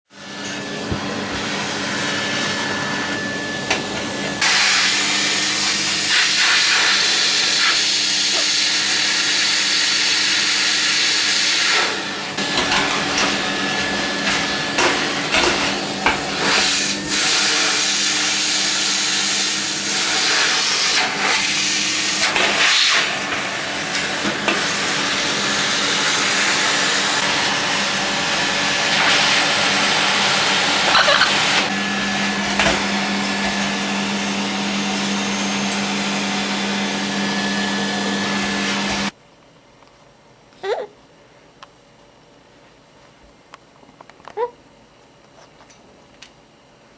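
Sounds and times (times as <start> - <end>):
vacuum cleaner running: 0.1 - 39.2.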